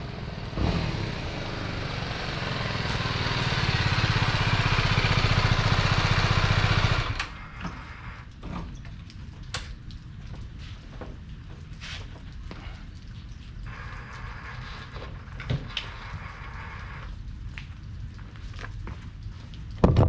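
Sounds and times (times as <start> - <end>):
motorcycle engine running: 0.0 - 7.3.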